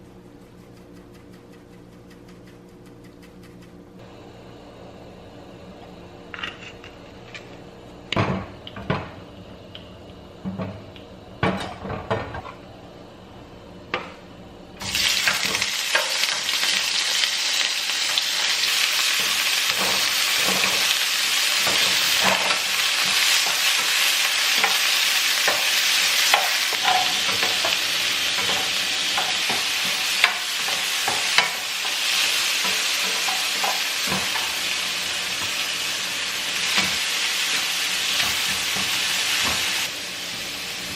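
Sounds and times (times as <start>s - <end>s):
food sizzling in a hot pan: 14.8s - 40.9s.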